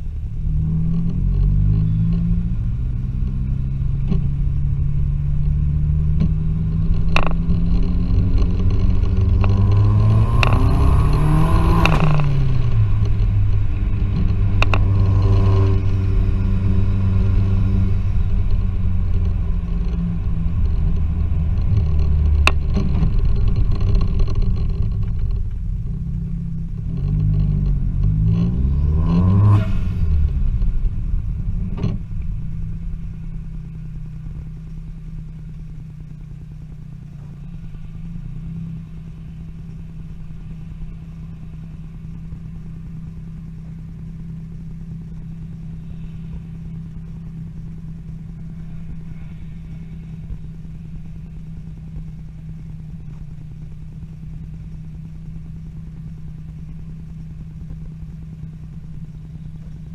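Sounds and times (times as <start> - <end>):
exhaust cracks: 0.0 - 59.9
van engine idling: 29.9 - 59.9.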